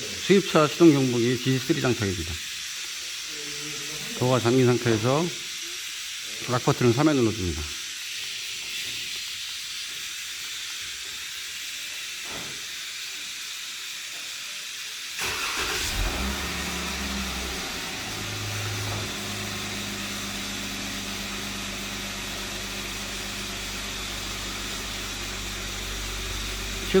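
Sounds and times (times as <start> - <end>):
steady hiss: 0.0 - 27.0
car engine starting and idling: 15.2 - 27.0.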